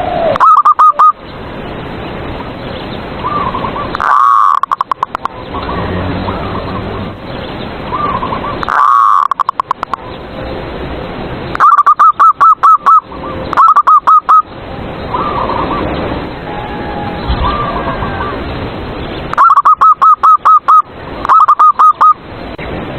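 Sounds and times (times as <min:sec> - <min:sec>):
doves cooing: 0:03.2 - 0:07.2, 0:07.9 - 0:10.0, 0:15.1 - 0:18.6, 0:19.3 - 0:22.2.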